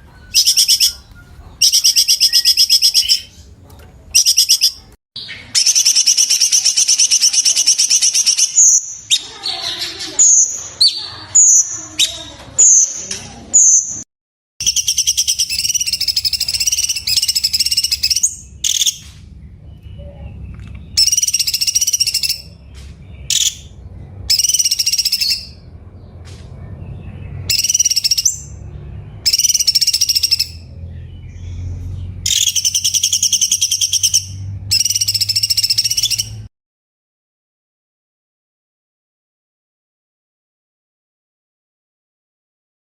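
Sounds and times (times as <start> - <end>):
songbird singing: 0.0 - 14.0, 14.6 - 36.5
low background hum: 14.6 - 36.5.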